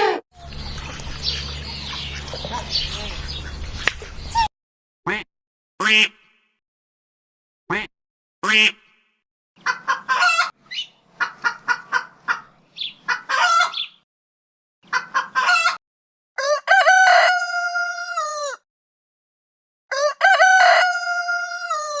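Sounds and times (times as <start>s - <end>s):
chickens clucking: 0.4s - 4.5s, 9.6s - 14.0s, 14.9s - 15.8s
rooster crowing: 13.1s - 13.9s, 16.4s - 18.6s, 19.9s - 22.0s.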